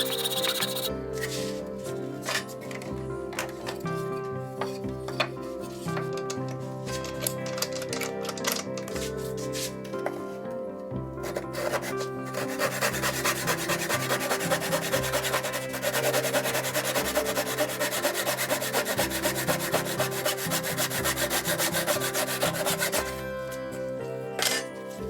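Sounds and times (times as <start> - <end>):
hand tool rubbing wood: 0.0 - 0.9, 11.2 - 23.2
background music: 0.0 - 25.0.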